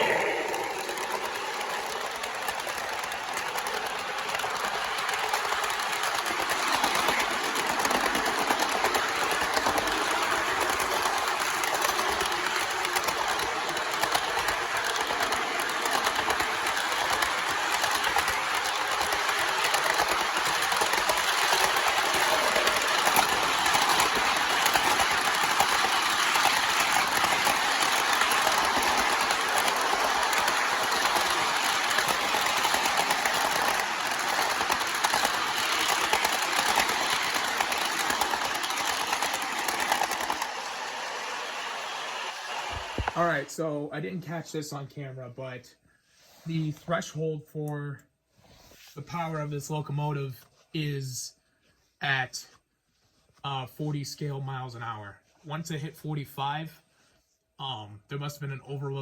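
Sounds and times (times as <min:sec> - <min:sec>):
model train whirring and rattling: 0:00.0 - 0:43.8.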